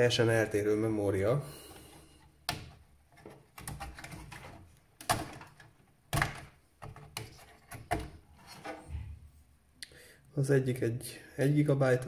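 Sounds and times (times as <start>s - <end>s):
clicks and knocks of computer parts: 2.4s - 8.8s.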